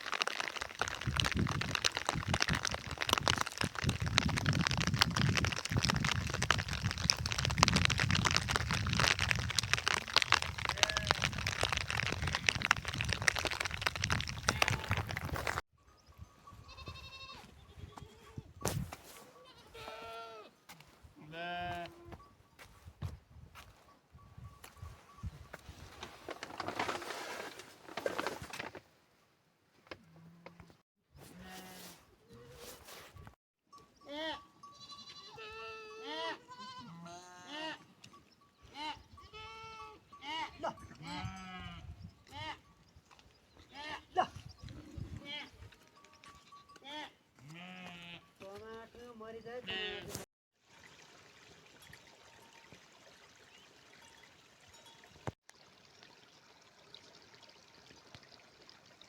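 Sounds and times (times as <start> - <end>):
sheep bleating: 19.4 - 20.5, 34.1 - 37.8, 49.6 - 50.2.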